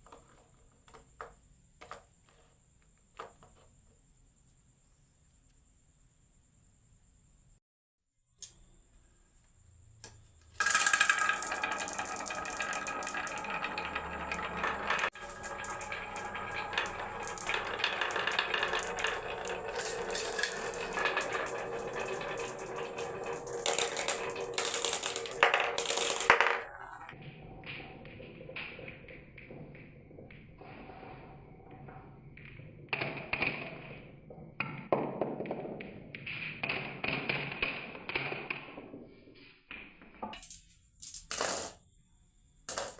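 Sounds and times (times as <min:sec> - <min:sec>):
marbles rattling down wooden run: 0:10.6 - 0:38.8.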